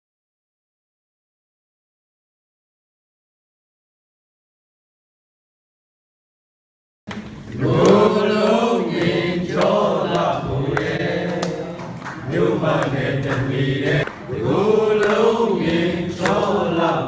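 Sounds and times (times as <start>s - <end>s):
chant-like singing: 7.1s - 17.0s.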